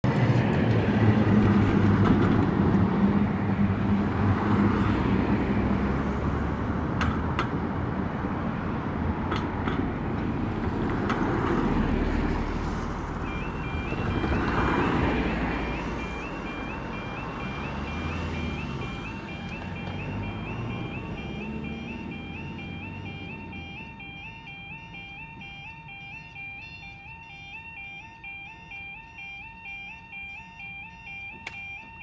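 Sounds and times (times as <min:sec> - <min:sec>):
cars passing: 0:00.0 - 0:32.0
level crossing two-tone alarm: 0:11.6 - 0:32.0.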